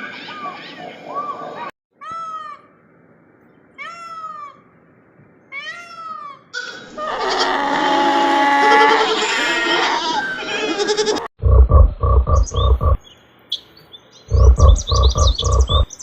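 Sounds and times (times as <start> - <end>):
overlapping animal calls: 6.6 - 11.3
cat meowing: 7.1 - 11.3.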